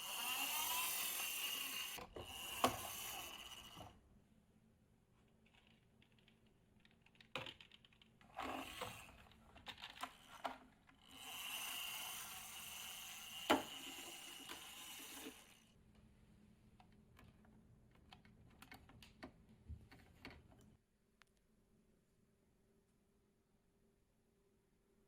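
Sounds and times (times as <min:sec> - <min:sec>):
plastic balls rattling on wooden track: 0:05.5 - 0:15.5.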